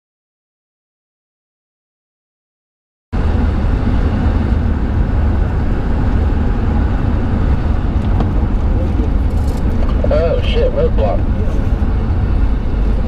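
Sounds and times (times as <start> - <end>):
road vehicle driving: 3.2 - 13.0.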